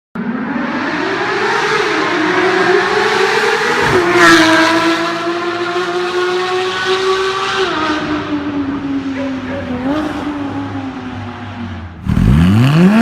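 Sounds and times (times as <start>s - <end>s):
car engine at high revs: 0.2s - 13.0s.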